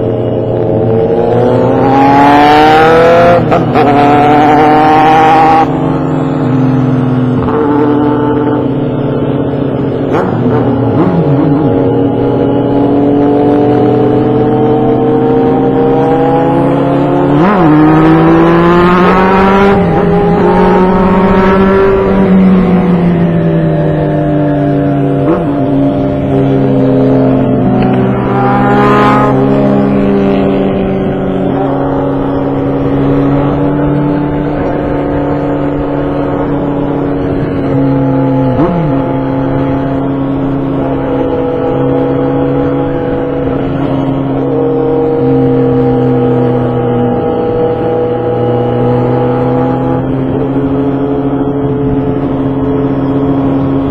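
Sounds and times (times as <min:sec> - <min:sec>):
motorcycle engine running: 0:19.6 - 0:53.9.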